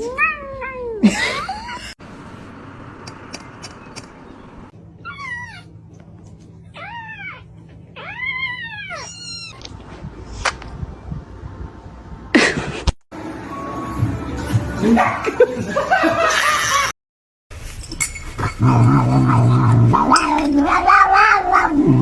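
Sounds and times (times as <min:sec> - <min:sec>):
cat meowing: 0:06.8 - 0:09.7, 0:20.1 - 0:21.9.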